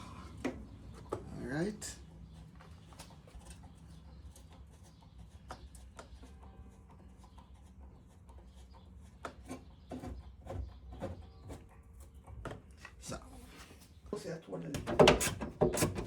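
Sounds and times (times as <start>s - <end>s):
faint clicks and knocks of hand work: 8.9s - 13.0s.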